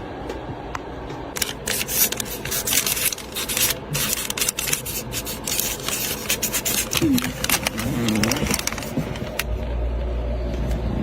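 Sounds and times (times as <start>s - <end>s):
scratchy rubbing and scraping: 1.4s - 9.4s.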